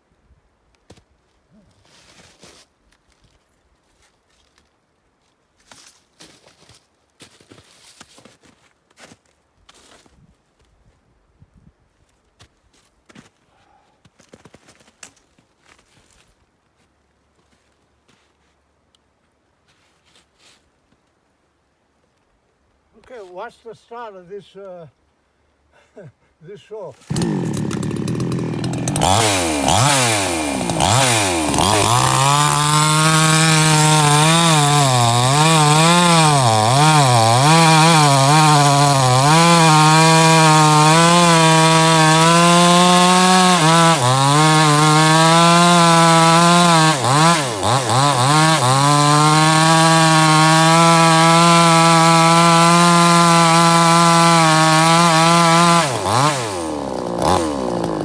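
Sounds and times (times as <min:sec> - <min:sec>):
chainsaw revving: 0:27.0 - 0:58.0.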